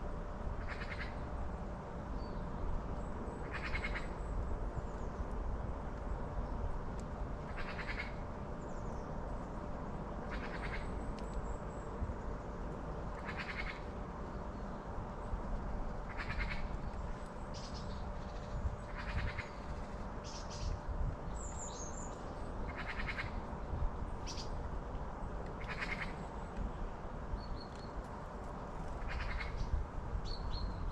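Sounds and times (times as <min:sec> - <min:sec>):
songbird harsh rattling calls: 0:03.5 - 0:04.1, 0:07.5 - 0:08.2, 0:13.2 - 0:13.8, 0:16.1 - 0:16.7, 0:22.7 - 0:23.4, 0:25.6 - 0:26.2, 0:29.0 - 0:29.7.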